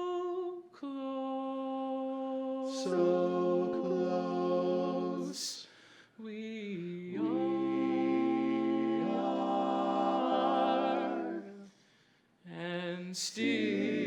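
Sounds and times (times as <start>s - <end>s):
male quartet singing a cappella: 1.2s - 5.6s, 6.3s - 11.7s, 12.5s - 14.0s
singer breathing: 5.6s - 6.2s, 11.6s - 12.4s.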